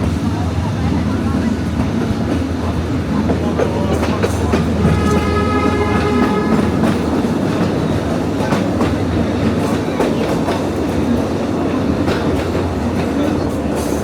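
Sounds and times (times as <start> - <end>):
train rumbling on track: 0.0 - 14.0.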